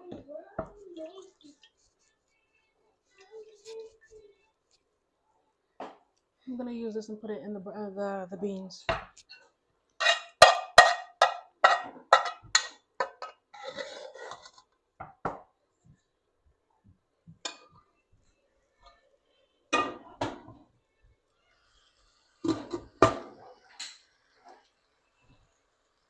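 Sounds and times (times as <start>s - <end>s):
pots and metal utensils clanking: 9.4s - 14.7s, 19.8s - 20.6s, 22.4s - 24.1s.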